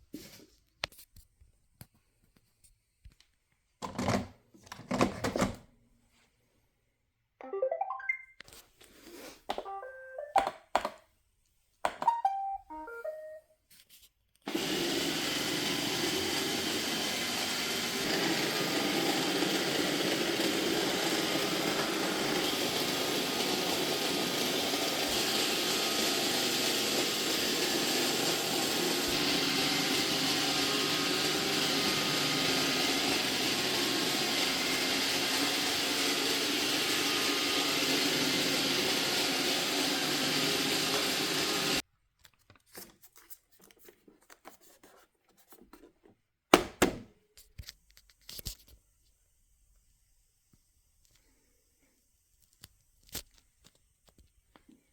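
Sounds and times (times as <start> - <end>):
short electronic tones: 12.0 - 13.4
robot vacuum motor and brushes: 14.5 - 41.8.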